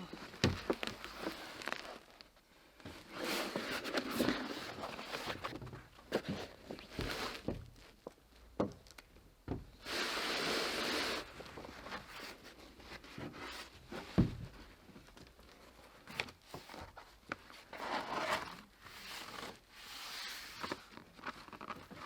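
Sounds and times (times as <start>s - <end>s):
tar paper rustling and crinkling: 0.0s - 2.4s.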